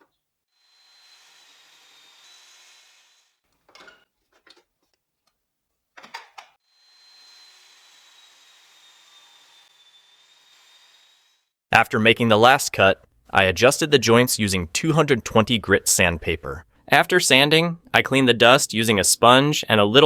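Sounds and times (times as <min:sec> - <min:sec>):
power saw cutting board: 0:00.0 - 0:03.4, 0:06.6 - 0:11.5.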